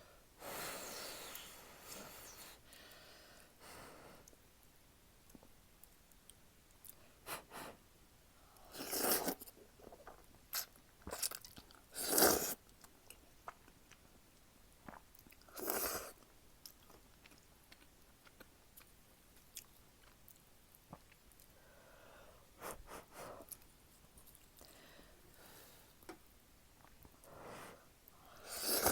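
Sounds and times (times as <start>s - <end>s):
slurping noodles: 8.7s - 11.3s, 11.9s - 12.6s, 28.4s - 28.9s
chewing: 16.6s - 21.6s.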